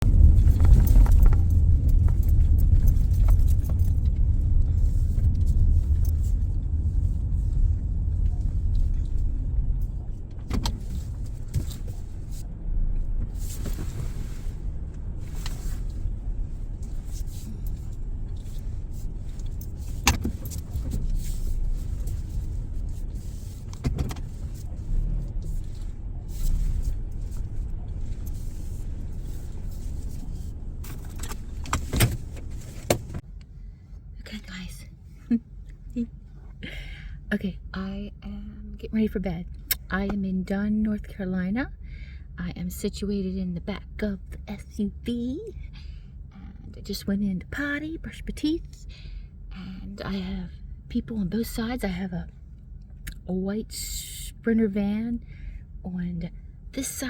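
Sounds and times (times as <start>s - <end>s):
car engine rumble: 0.0s - 57.0s
sharp clicks and knocks: 19.4s - 21.1s.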